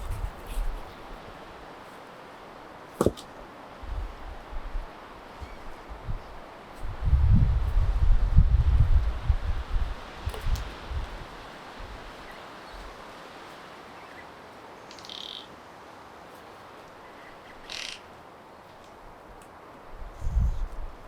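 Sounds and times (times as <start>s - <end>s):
wind thumps on microphone: 0.0s - 0.9s, 3.8s - 11.2s
wind hiss: 0.0s - 21.0s
high bird calls: 14.0s - 15.5s, 17.0s - 18.1s.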